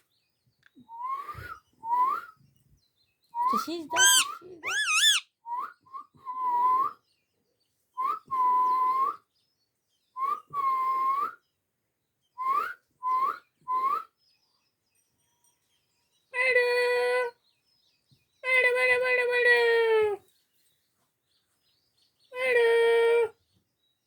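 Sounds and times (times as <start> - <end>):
harsh parrot call: 3.8 - 5.2
parrot whistling: 3.9 - 5.2.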